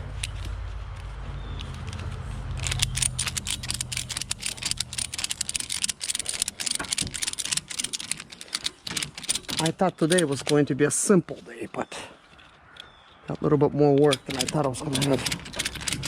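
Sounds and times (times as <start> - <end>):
ratchet strap clicking: 0.0 - 10.7, 14.0 - 16.0.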